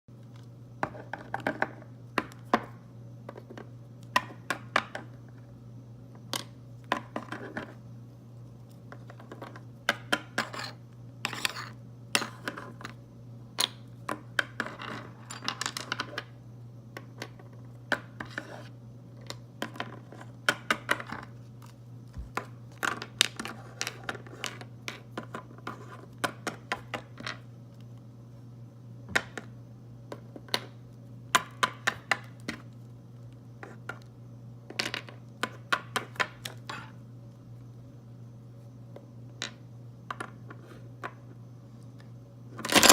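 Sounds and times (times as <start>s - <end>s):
steady low hum: 0.1s - 35.8s
objects clicking and clinking: 42.7s - 42.9s.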